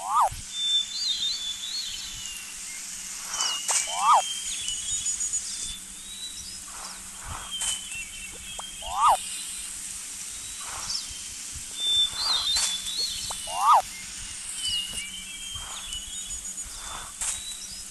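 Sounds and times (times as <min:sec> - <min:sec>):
quick up-and-down bird call: 0:00.0 - 0:00.3, 0:03.3 - 0:04.3, 0:08.6 - 0:09.2, 0:12.2 - 0:13.8
birds chirping and whistling: 0:00.0 - 0:17.9
faint steady hum: 0:00.0 - 0:17.9.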